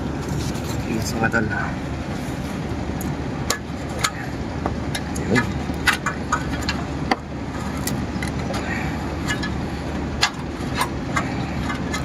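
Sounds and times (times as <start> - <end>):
low background rumble: 0.0 - 12.0
clicks and knocks on metal parts: 4.9 - 7.2, 9.2 - 9.6.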